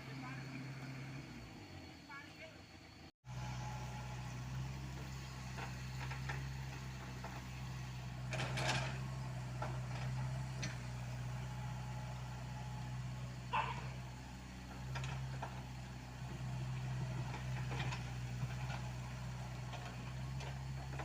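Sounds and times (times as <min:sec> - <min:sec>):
excavator diesel engine running: 0:00.0 - 0:21.0
light metal clanks: 0:08.2 - 0:11.1, 0:14.7 - 0:21.0.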